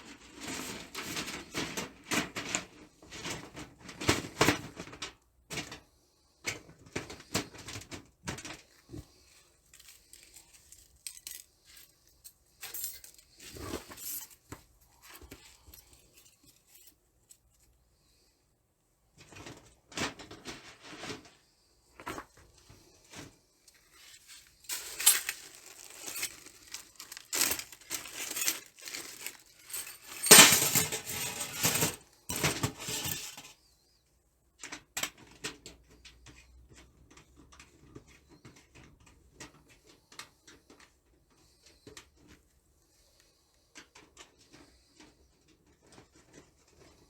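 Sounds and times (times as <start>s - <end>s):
rustling: 6.8s - 17.8s, 19.2s - 33.5s
light metallic clattering: 24.7s - 33.5s.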